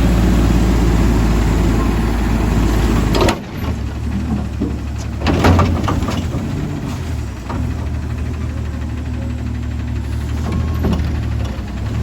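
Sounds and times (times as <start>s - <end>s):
diesel engine rumbling: 0.0s - 12.0s
metal clanks and knocks: 3.0s - 8.3s, 10.4s - 11.8s.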